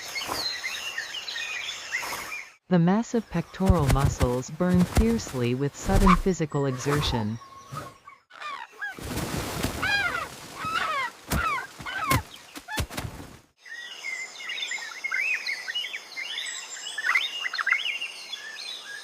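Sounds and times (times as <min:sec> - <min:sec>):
small birds chirping: 0:00.0 - 0:02.6, 0:03.2 - 0:09.1, 0:09.8 - 0:12.9.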